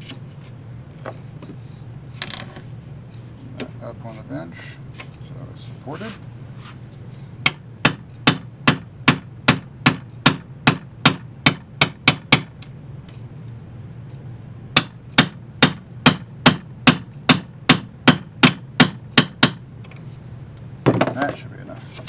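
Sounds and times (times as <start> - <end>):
hammer tapping a punch: 7.4 - 12.6, 14.8 - 19.6.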